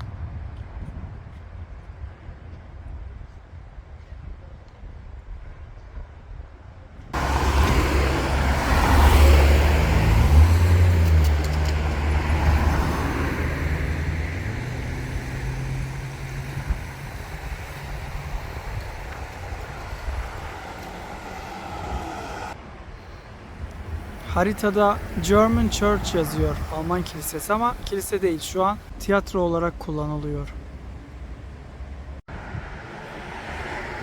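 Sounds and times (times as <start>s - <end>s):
tyre and road noise: 6.8s - 34.0s
vehicle passing by: 7.2s - 22.6s, 23.4s - 28.9s, 30.7s - 34.0s.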